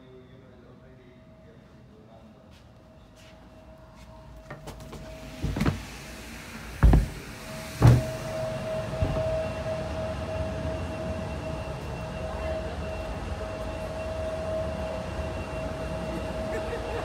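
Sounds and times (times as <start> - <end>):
steady droning tone: 3.6 - 17.0
low rumble: 5.0 - 10.8
thump: 5.4 - 5.8, 6.8 - 8.4, 9.0 - 9.3.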